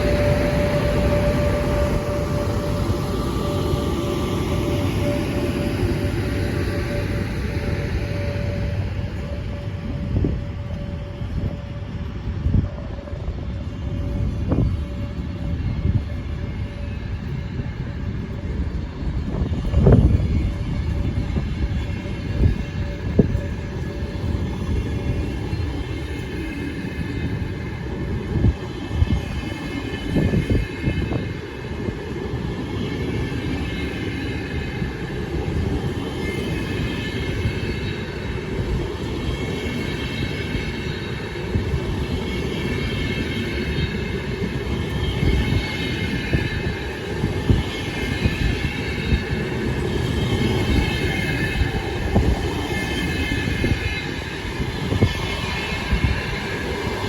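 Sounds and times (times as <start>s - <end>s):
high wheel squeal: 0.0s - 12.1s
train wheels rumbling on rails: 0.0s - 57.0s.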